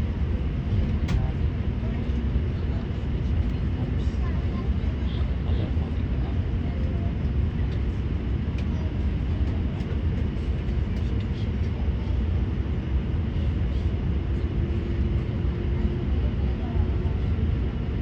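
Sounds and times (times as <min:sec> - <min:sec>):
airplane cabin rumble: 0:00.0 - 0:18.0
faint cabin clicks and rattles: 0:00.7 - 0:12.3.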